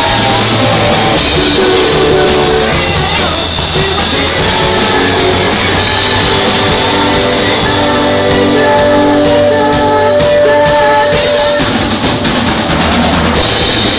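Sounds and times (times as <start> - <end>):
guitar: 0.0 - 13.9
loud rock band music: 0.0 - 13.9.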